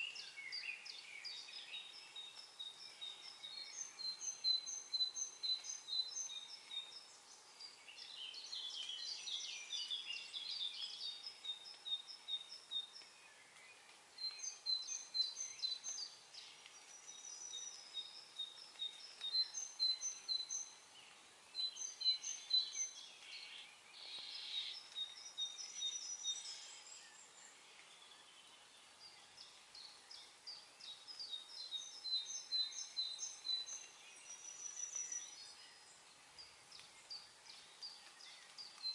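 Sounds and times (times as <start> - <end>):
faint steady hiss: 0.0 - 38.9
songbirds chirping: 0.0 - 38.9.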